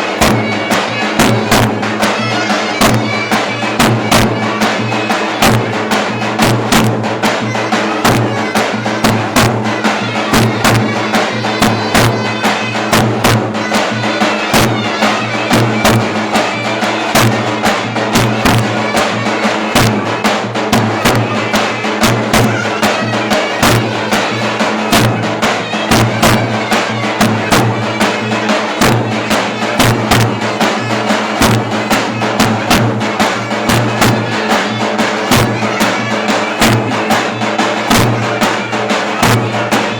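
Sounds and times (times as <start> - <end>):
sharp bass drum strokes: 0.0 - 39.9.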